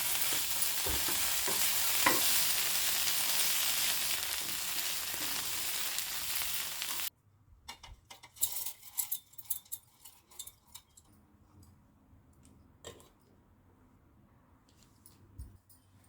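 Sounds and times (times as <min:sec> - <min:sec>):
food sizzling in oil: 0:00.0 - 0:07.1.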